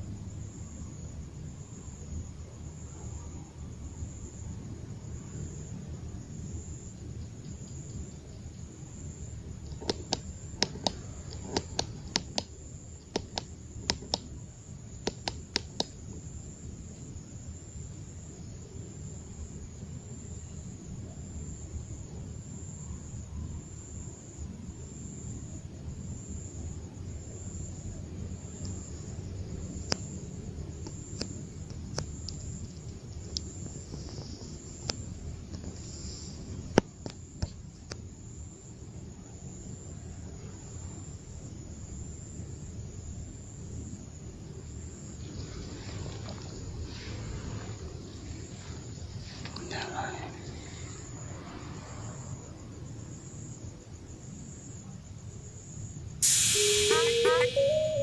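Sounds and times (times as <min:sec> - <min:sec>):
thin high tone: 0:56.2 - 0:58.0.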